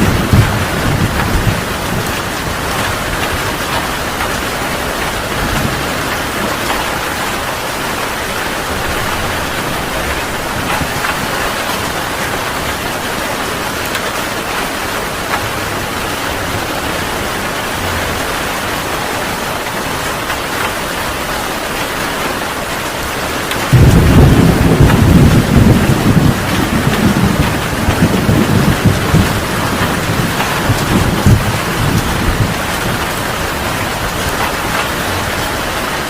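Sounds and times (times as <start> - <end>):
loud low thunder rumble: 0.0 - 6.8, 23.7 - 34.4
heavy rain falling: 0.0 - 36.0.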